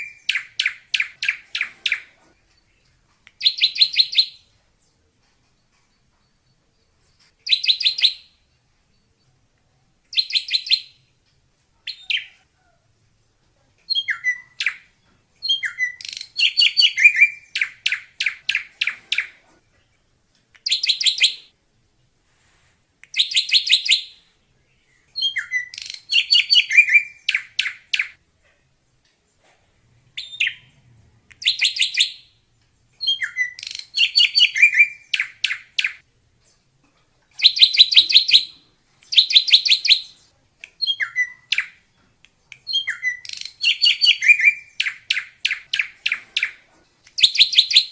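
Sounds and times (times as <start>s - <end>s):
bird singing buzzy notes and whistles: 25.2s - 28.2s, 33.0s - 36.0s, 37.4s - 40.1s, 42.7s - 46.5s, 47.2s - 47.9s.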